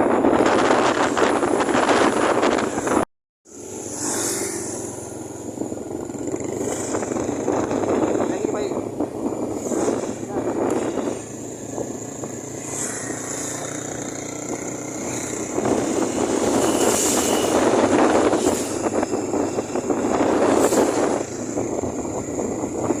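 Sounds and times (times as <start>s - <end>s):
road vehicle rushing: 0.0s - 23.0s.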